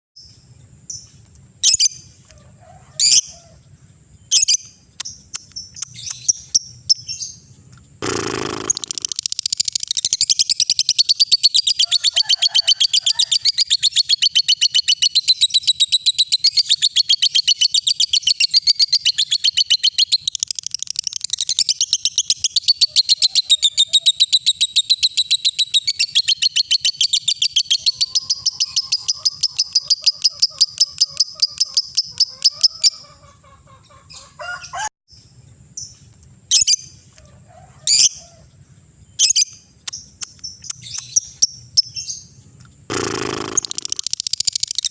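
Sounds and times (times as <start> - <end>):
bird high-pitched trill: 4.3 - 33.2, 39.2 - 44.9
bird sharp calls: 8.0 - 15.7, 25.8 - 34.9, 42.9 - 44.9.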